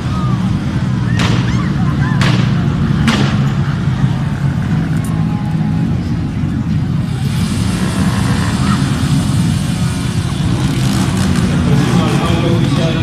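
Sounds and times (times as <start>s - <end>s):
motorcycle engine rumbling: 0.0s - 13.0s
sharp crack: 1.1s - 3.7s.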